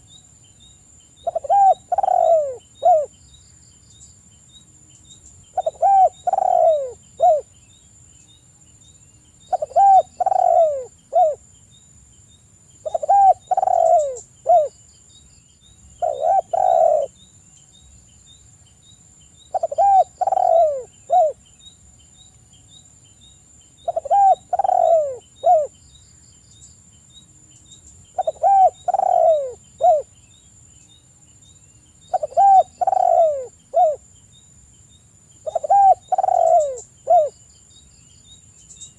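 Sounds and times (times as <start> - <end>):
dove cooing: 1.2 - 3.1, 5.6 - 7.5, 9.5 - 11.4, 12.8 - 14.7, 16.0 - 17.2, 19.5 - 21.4, 23.8 - 25.7, 28.2 - 30.1, 32.1 - 34.0, 35.4 - 37.3.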